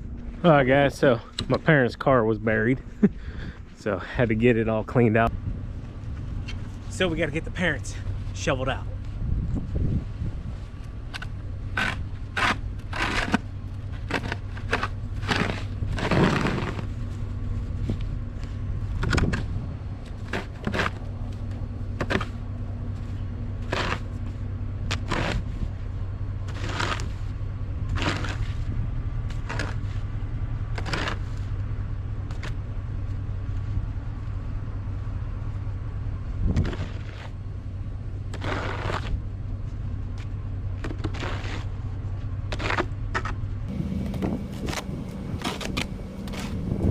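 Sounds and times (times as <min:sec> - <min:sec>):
steady low hum: 0:00.0 - 0:46.9
snow shovel scraping snow: 0:11.8 - 0:17.3, 0:23.6 - 0:24.2, 0:24.9 - 0:25.7, 0:26.5 - 0:27.3, 0:27.9 - 0:28.7, 0:29.4 - 0:30.0, 0:30.8 - 0:31.5, 0:38.4 - 0:39.2, 0:41.0 - 0:41.8, 0:44.2 - 0:46.9.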